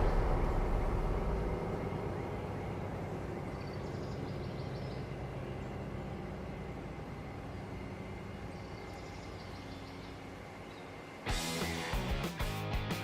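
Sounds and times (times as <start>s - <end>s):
explosion rumble: 0.0s - 3.6s
noisy hiss: 0.0s - 13.0s.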